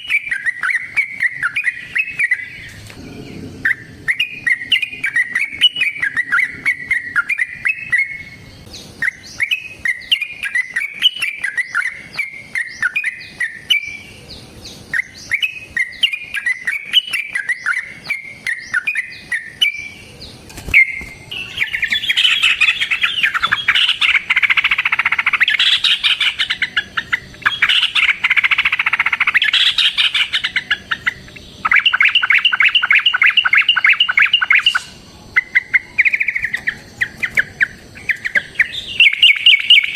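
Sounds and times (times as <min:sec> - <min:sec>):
bulbul chirping and trilling: 0:21.4 - 0:39.9.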